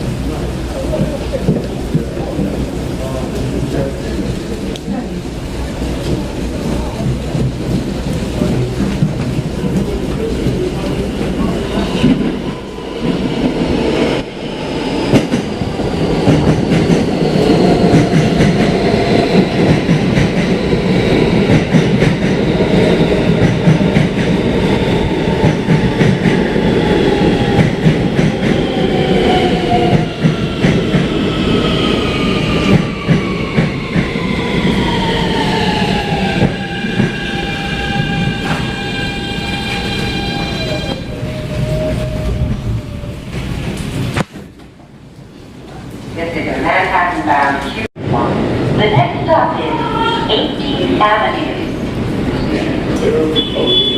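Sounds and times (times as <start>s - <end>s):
subway train rumble: 0.0s - 53.9s.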